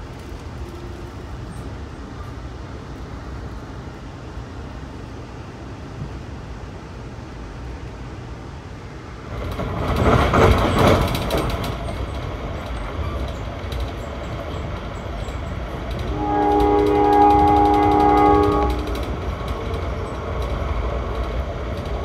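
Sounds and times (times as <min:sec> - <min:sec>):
clicking over rails: 0:00.0 - 0:04.2, 0:09.1 - 0:22.0
train rumble inside coach: 0:00.0 - 0:22.0.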